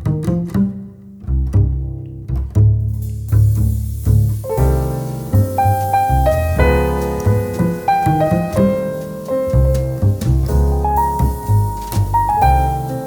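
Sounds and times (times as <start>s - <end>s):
low bass line: 0.0s - 13.0s
slow piano: 3.8s - 13.0s.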